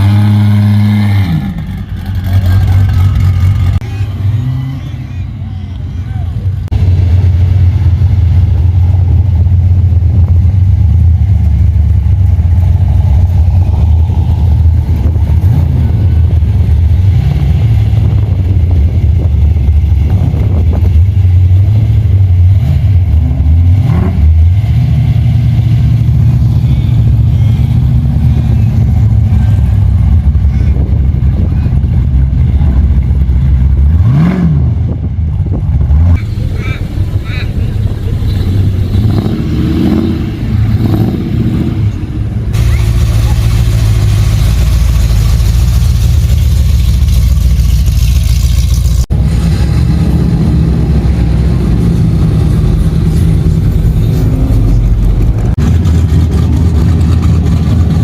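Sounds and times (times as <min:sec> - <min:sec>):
engine throttle blips: 0:00.0 - 0:58.0
car engine idling loudly: 0:35.3 - 0:40.0, 0:42.0 - 0:58.0.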